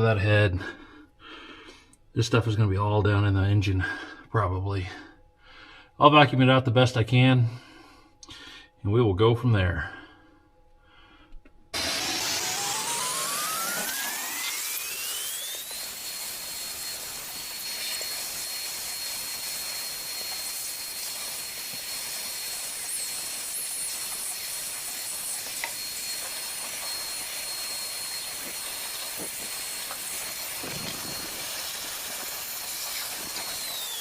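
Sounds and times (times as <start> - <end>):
vacuum cleaner running: 11.8 - 34.0.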